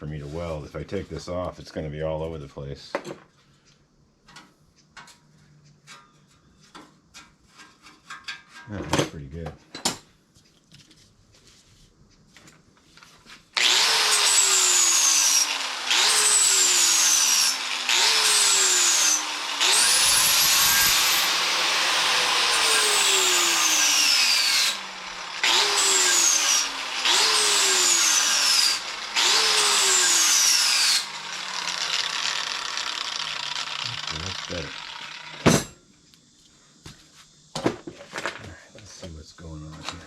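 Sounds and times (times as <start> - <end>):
power tool on steel fender: 13.6 - 35.7.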